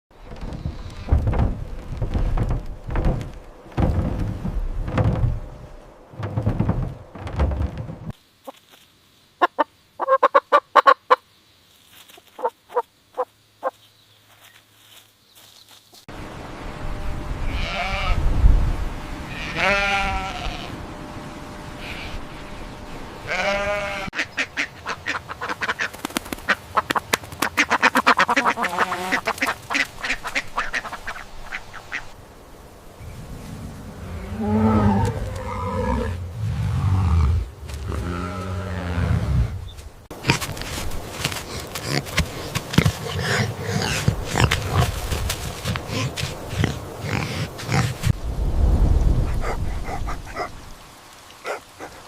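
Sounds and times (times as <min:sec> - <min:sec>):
ducks quacking: 0:09.4 - 0:11.2, 0:12.4 - 0:13.8, 0:23.2 - 0:32.2
waterfowl calling: 0:09.4 - 0:11.2, 0:12.4 - 0:13.8, 0:23.2 - 0:32.2.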